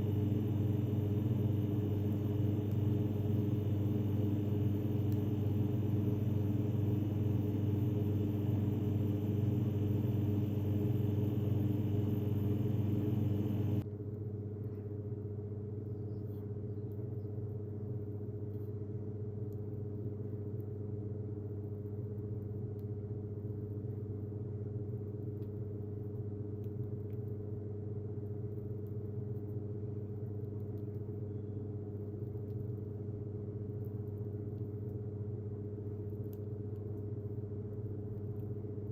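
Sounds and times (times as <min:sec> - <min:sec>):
low motor hum: 0:00.0 - 0:13.8.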